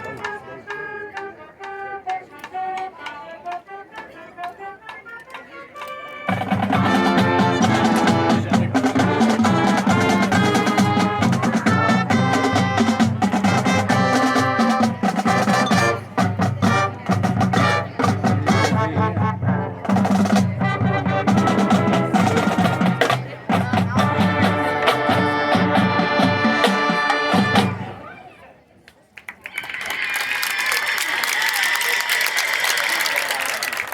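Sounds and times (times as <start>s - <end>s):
brass melody: 0.0s - 28.1s
marching band playing: 0.0s - 28.2s
marching drums: 6.3s - 28.0s.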